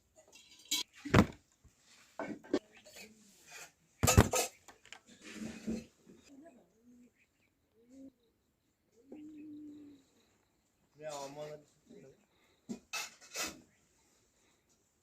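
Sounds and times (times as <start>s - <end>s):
dishes and utensils clattering: 0.2s - 1.2s, 2.2s - 6.0s, 12.7s - 13.7s
indistinct voice murmuring: 6.3s - 10.4s.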